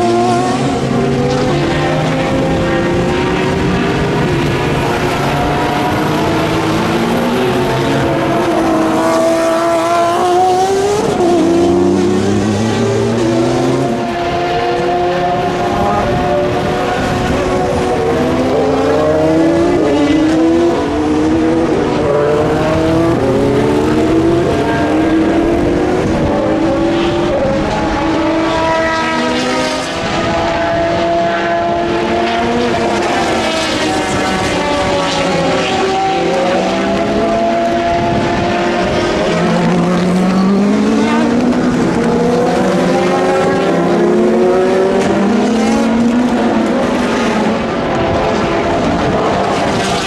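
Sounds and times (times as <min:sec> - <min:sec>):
racing car engines revving: 0:00.0 - 0:50.0.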